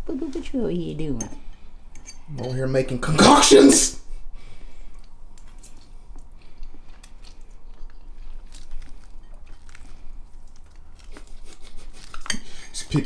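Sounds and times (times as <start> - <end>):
person chewing noodles: 4.6 - 12.8.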